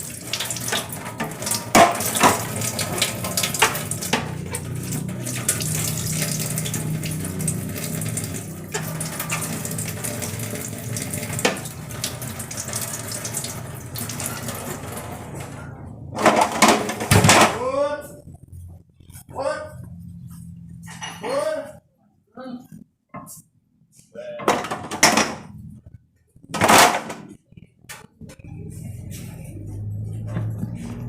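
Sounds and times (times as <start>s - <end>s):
items knocking against sink: 0.7s - 4.6s
tap running into sink: 8.8s - 14.5s.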